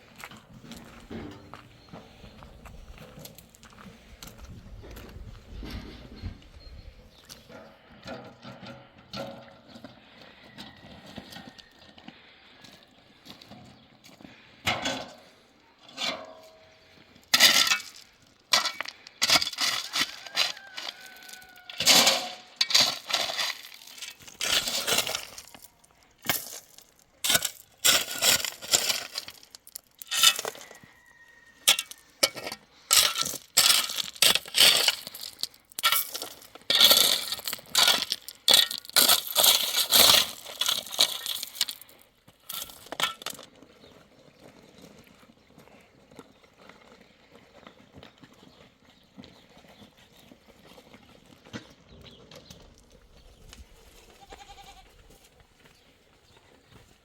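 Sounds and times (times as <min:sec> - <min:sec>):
hard objects clattering: 0:17.3 - 0:43.6.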